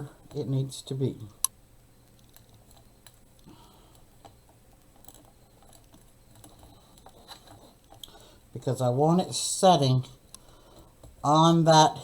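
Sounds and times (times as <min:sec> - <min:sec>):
small clicks of handling craft pieces: 0:01.3 - 0:08.2.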